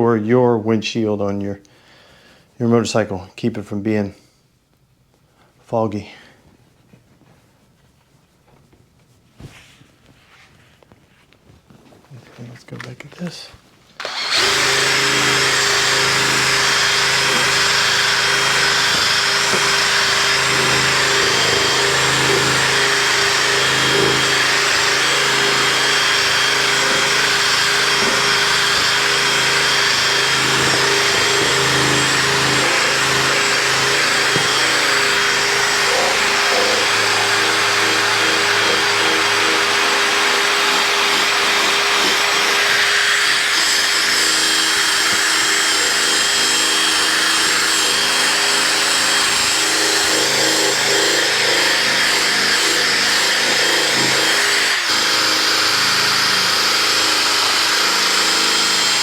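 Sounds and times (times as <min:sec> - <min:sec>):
electric drill polishing plastic: 0:14.0 - 0:59.0.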